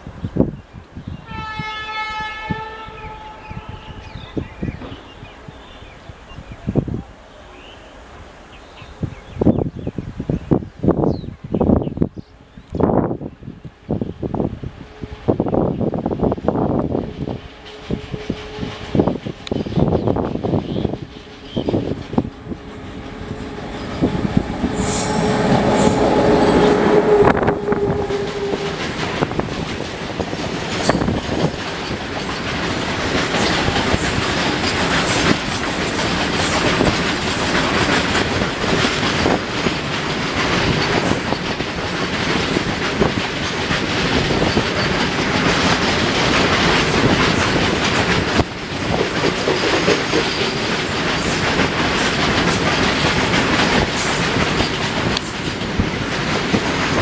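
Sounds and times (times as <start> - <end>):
train wheels clattering over rail joints: 16.2 - 57.0
steady tone: 20.9 - 29.6.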